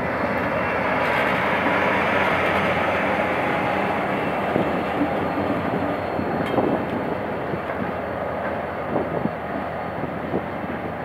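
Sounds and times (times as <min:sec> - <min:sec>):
diesel locomotive running hard: 0:00.0 - 0:11.0
train coaches rolling past: 0:00.0 - 0:11.0
train wheel knocks: 0:04.4 - 0:09.3.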